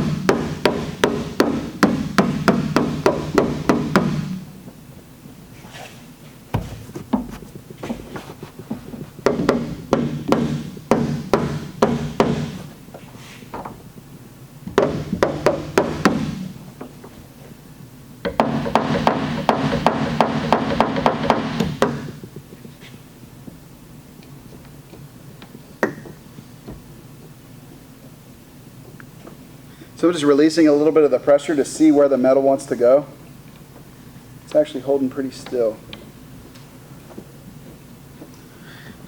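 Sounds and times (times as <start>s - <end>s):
hammer tapping on sheet metal: 0.0s - 4.4s, 9.3s - 12.6s, 14.7s - 16.4s, 18.2s - 22.2s.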